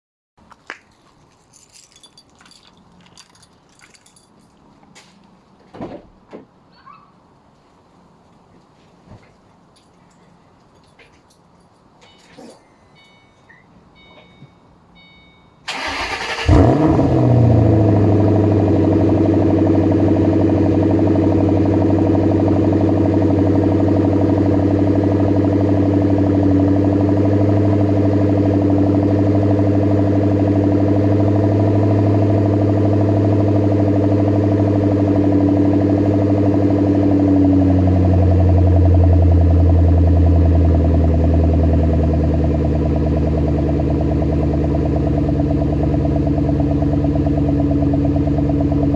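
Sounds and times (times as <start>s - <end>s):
car engine idling: 15.6s - 48.9s
engine cranking: 15.7s - 17.6s.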